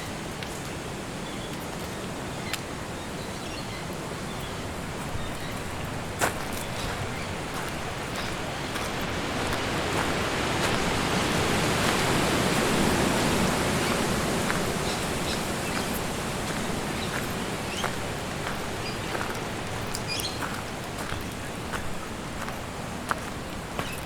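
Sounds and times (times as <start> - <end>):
wind rushing through trees: 0.0 - 24.0.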